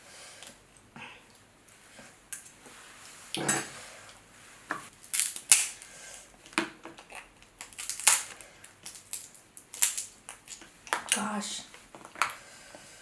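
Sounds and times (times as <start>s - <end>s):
crab shells cracking: 5.0s - 11.2s.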